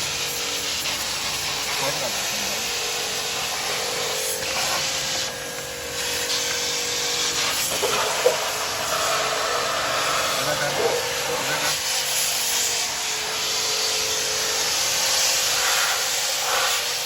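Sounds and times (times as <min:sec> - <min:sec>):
steady hum: 0:00.0 - 0:15.8
air spray gun hissing: 0:00.0 - 0:17.0.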